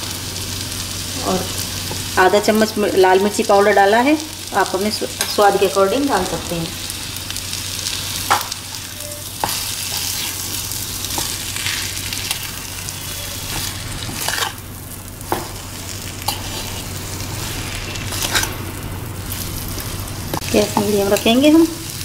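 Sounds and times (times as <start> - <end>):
food sizzling in oil: 0.0 - 22.0
spoon scraping pan: 8.7 - 11.4, 12.2 - 14.6, 16.2 - 18.6.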